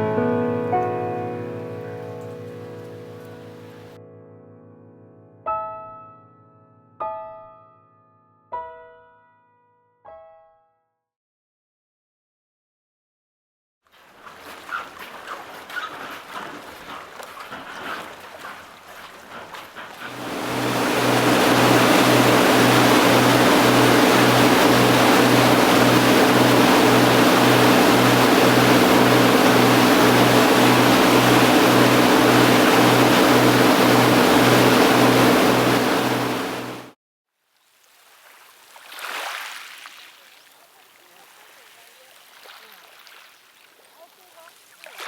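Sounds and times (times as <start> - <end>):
motorboat engine humming: 0.8 - 3.9, 14.0 - 36.9
rushing water and wind: 14.0 - 36.9, 37.7 - 45.0.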